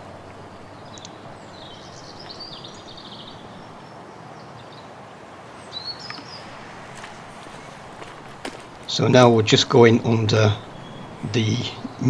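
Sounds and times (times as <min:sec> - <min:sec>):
songbird singing: 0:00.0 - 0:12.0
steady background hiss: 0:00.0 - 0:12.0.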